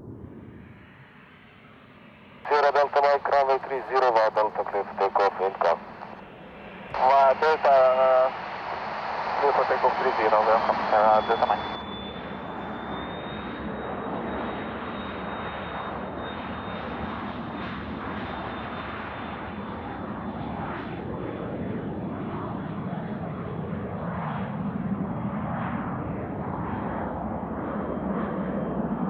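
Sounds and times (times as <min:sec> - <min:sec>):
jet engines roaring at takeoff: 0:00.0 - 0:29.0.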